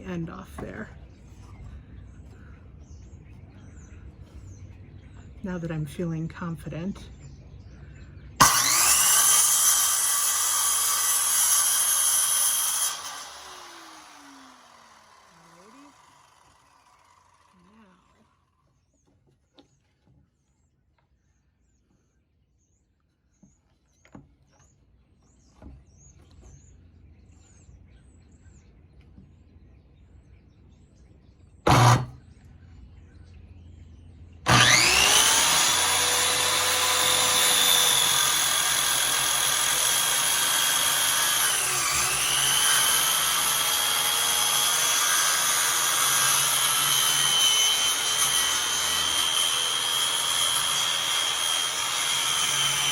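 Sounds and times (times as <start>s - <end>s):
electric saw motor whine: 8.4s - 18.3s, 31.7s - 32.2s, 34.5s - 52.9s.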